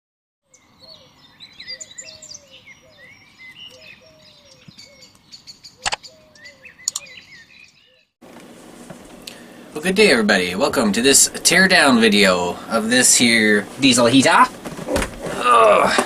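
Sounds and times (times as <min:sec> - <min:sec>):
birds chirping and singing: 0:00.5 - 0:08.2
sharp clicks: 0:05.8 - 0:06.0, 0:06.8 - 0:07.1.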